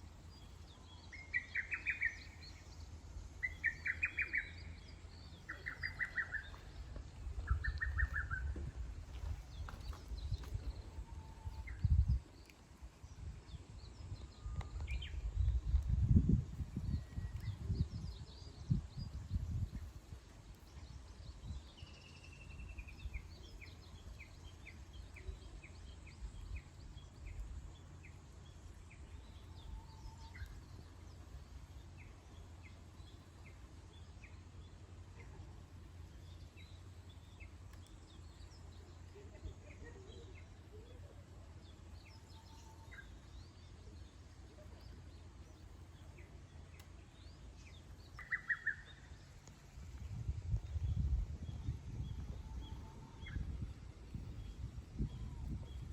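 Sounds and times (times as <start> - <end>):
faint low rumble: 0.0 - 55.9
birds chirping and singing: 3.4 - 12.2, 38.1 - 49.6, 50.2 - 55.9.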